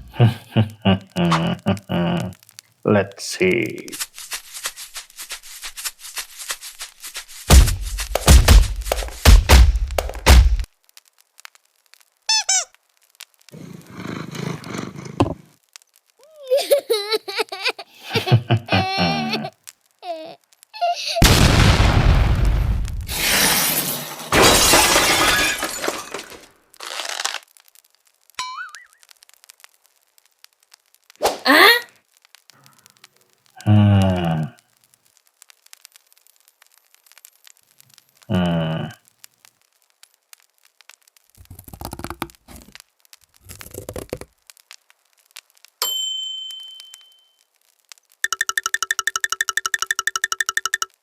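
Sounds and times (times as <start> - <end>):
crackling crunching bursts: 0.0 - 45.8, 47.4 - 51.0
loud crashing and breaking: 21.2 - 26.6
bright ding: 45.8 - 47.4.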